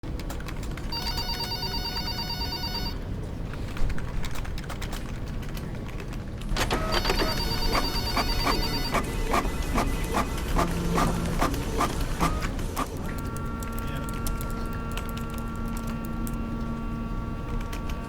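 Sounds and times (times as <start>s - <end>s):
electronic telephone ringing: 0.9s - 3.0s, 6.9s - 8.9s.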